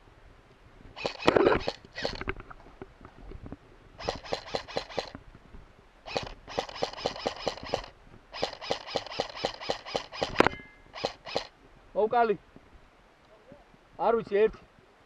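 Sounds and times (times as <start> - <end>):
airsoft rifle firing bursts: 1.0 - 2.2, 4.0 - 5.2, 6.1 - 11.5.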